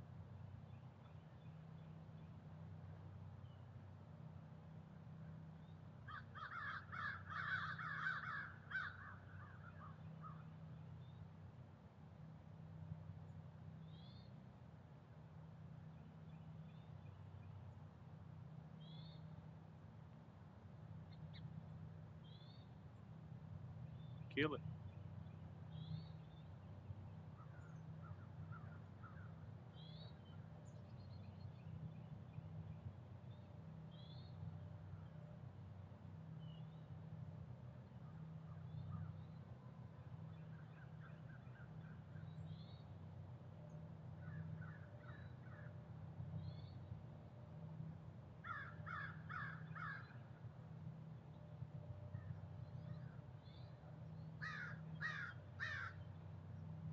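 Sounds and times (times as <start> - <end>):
steady low hum: 8.4 - 56.9
faint bird chirps: 13.3 - 14.4, 23.9 - 35.4.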